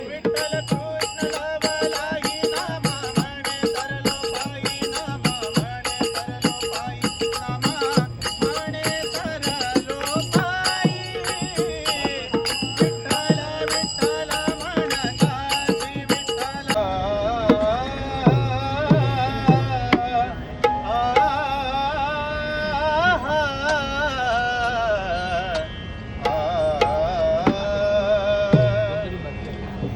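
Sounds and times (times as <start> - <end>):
hand drum beat: 0.0 - 16.8
small hand cymbals ringing: 0.0 - 16.8.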